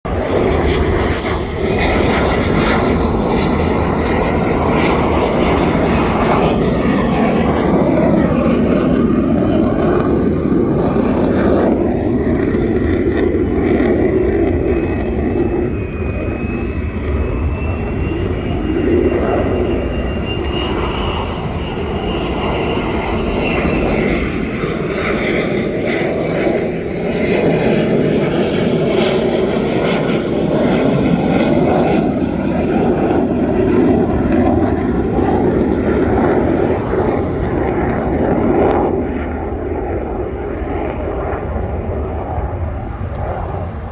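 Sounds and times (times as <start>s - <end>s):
fighter jet engines roaring: 0.0s - 43.9s
thin high whine: 0.1s - 9.1s, 14.3s - 24.9s, 32.4s - 40.2s.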